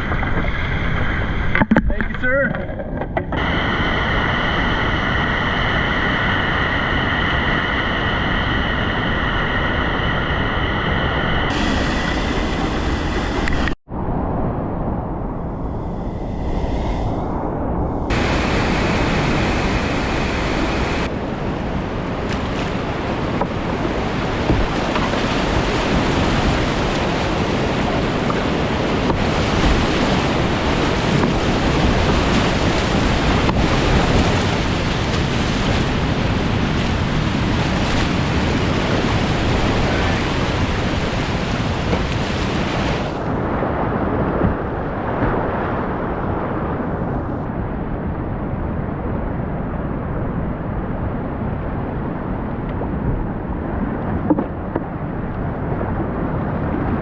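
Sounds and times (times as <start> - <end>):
whitewater rapids roaring: 11.5 - 13.8, 18.1 - 43.3.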